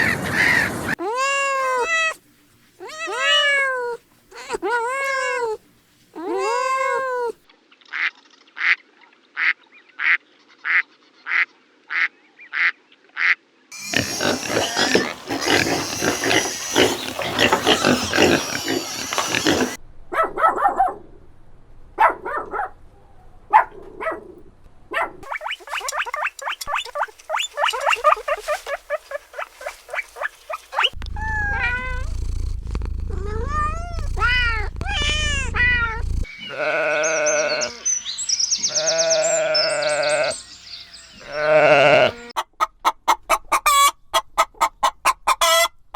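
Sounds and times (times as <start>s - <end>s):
farm animals calling: 11.3s - 19.8s, 25.3s - 32.4s, 33.1s - 42.4s
low hum: 31.0s - 36.3s.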